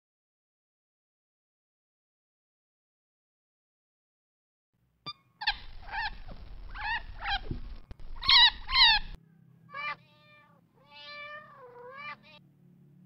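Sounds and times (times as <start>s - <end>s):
chinchilla squeaking: 5.1s - 9.2s
cat meowing: 5.4s - 12.4s.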